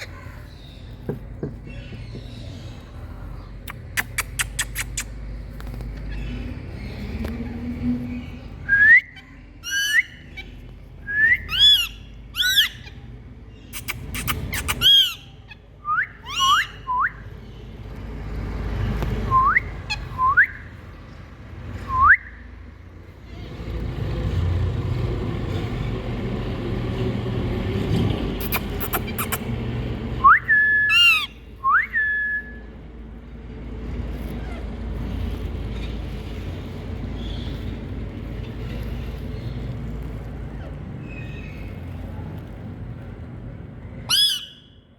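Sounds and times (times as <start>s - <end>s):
parrots whistling and screeching: 0.0s - 0.7s, 3.7s - 17.2s, 28.4s - 29.6s, 30.2s - 32.6s, 44.0s - 44.8s.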